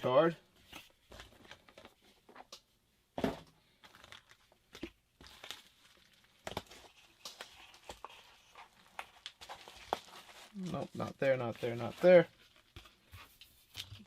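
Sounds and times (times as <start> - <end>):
plastic packaging crinkling: 3.8 - 13.0.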